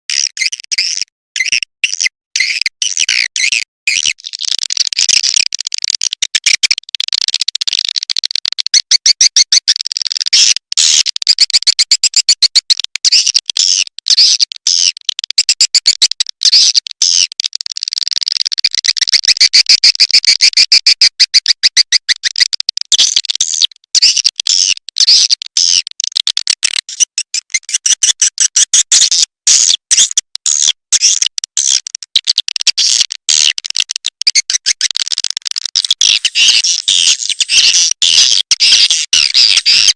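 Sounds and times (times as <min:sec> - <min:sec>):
rapid high bird chirps: 0:18.9 - 0:22.5, 0:27.0 - 0:30.2, 0:35.8 - 0:39.9.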